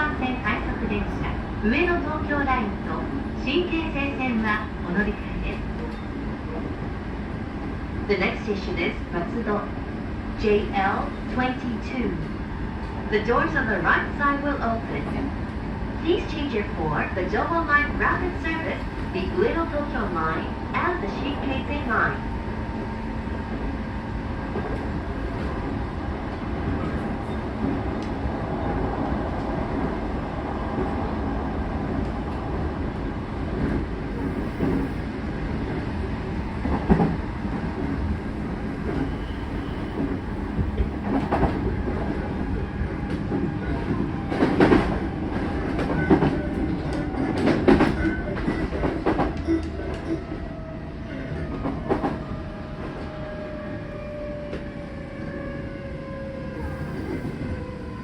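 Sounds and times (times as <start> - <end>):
train wheels rumbling on rails: 0.0 - 58.0
clacks over rail joints: 43.0 - 50.2.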